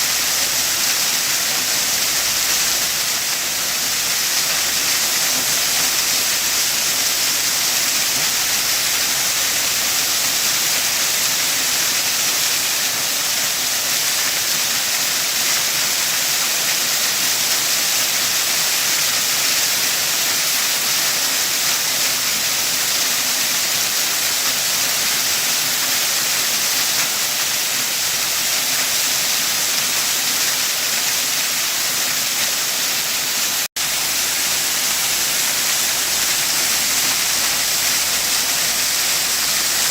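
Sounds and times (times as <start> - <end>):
waterfall rushing: 21.4 - 39.9.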